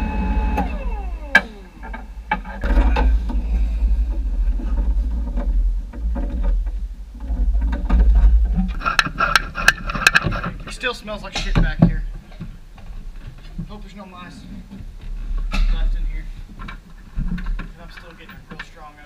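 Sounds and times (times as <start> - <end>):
blower fan winding down: 0.0 - 4.6
low steady rumble: 0.0 - 10.7.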